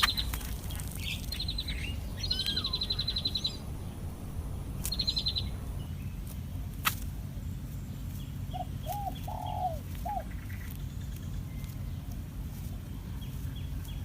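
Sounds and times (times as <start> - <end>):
bird trill: 0.0 - 6.2, 7.6 - 12.0
steady low background rumble: 0.0 - 14.0
low cooing notes: 8.6 - 10.3.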